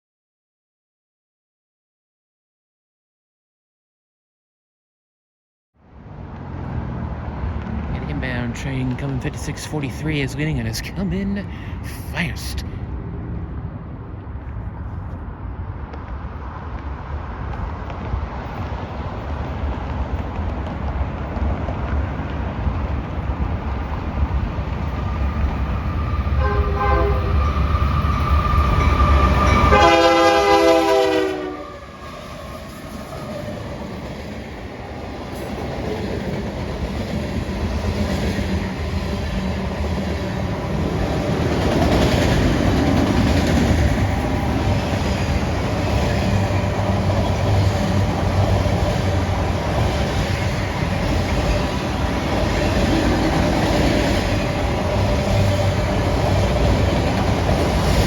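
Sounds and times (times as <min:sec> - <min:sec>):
train wheels clattering on rails: 0:15.9 - 0:26.1, 0:33.9 - 0:58.0
train horn blasts: 0:26.4 - 0:28.0, 0:28.6 - 0:32.0.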